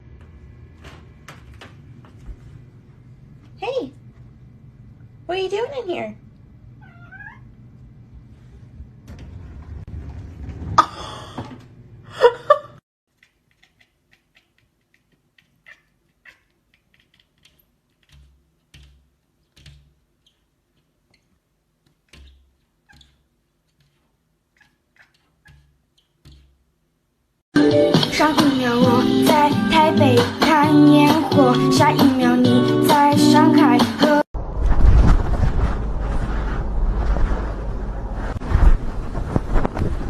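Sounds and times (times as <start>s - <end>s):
low background hum: 0.0s - 27.4s
kitten meowing: 6.8s - 7.5s.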